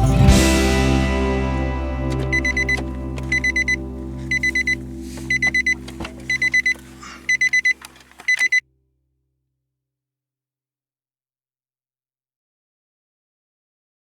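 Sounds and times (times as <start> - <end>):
sustained music chords: 0.0 - 5.9
high alarm clock beeps: 2.2 - 8.6.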